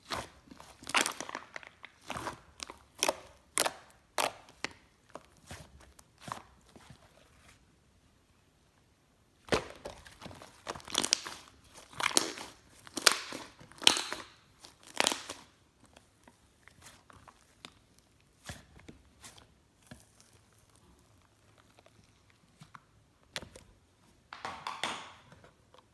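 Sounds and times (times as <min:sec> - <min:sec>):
slime crackling and popping: 0:00.0 - 0:06.0, 0:09.5 - 0:22.2.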